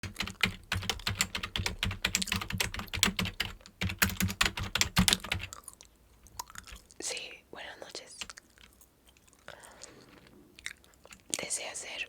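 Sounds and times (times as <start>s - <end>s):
typing on keyboard: 0.0s - 5.6s.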